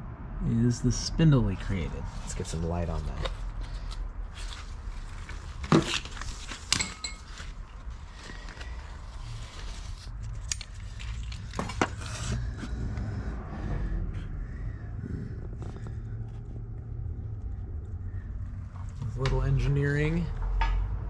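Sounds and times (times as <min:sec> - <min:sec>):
steady low hum: 0:00.0 - 0:21.0
metallic clinks and rattles: 0:06.4 - 0:07.8.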